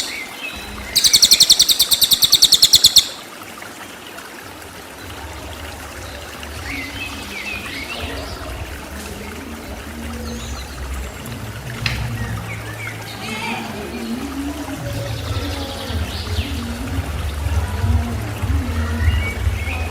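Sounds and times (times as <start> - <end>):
songbird rapid sharp notes: 0.0 - 0.3, 0.9 - 3.2
watery background: 0.0 - 19.9
faint chirps: 1.0 - 3.2.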